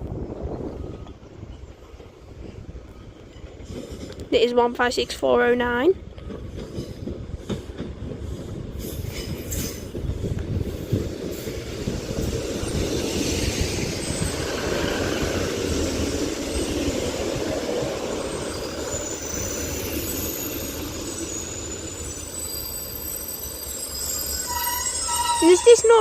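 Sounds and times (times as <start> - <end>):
train rumbling on rails: 0.0 - 26.0
faint high squeals: 18.1 - 26.0.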